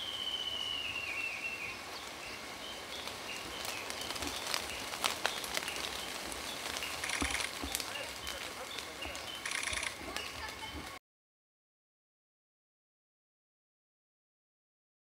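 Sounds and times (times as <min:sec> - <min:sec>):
short whistled bird notes: 0:00.0 - 0:01.7
bird whistled song: 0:00.0 - 0:02.4
woodpecker harsh grating call: 0:03.6 - 0:10.8
sharp clicks: 0:07.0 - 0:10.5.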